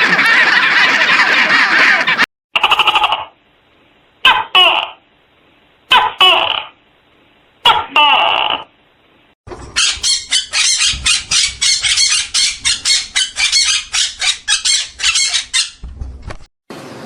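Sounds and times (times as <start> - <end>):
bird squawking: 0.0 - 3.2, 9.7 - 15.8.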